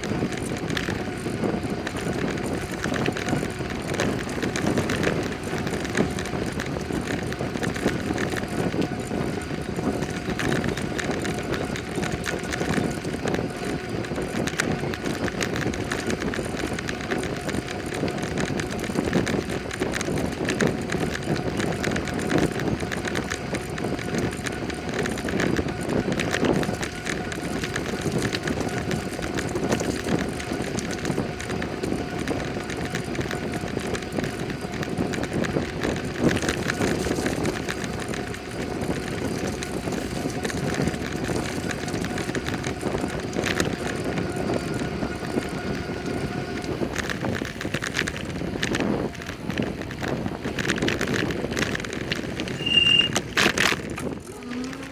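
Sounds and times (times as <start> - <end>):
bicycle tyre and wind noise: 0.0 - 54.9
bike rattles: 0.0 - 54.9.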